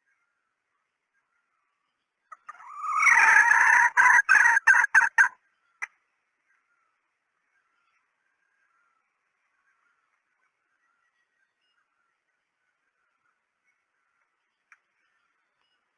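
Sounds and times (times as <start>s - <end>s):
junglefowl calling: 2.3s - 5.4s.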